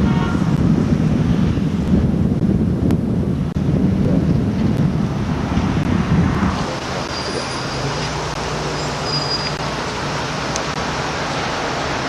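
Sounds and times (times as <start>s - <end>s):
wind buffeting microphone: 0.0s - 8.7s
car engine and road noise: 0.0s - 12.0s.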